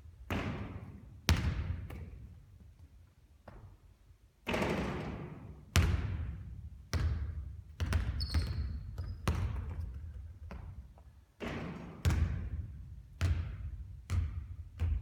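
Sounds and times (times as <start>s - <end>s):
basketball bouncing on hard court: 0.3s - 2.3s, 4.5s - 15.0s
brief high squeak: 8.2s - 8.8s.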